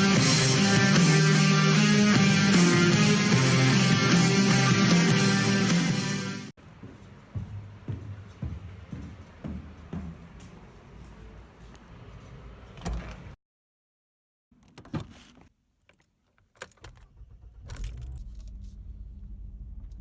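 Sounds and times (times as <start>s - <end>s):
keys jangling: 17.7s - 18.6s.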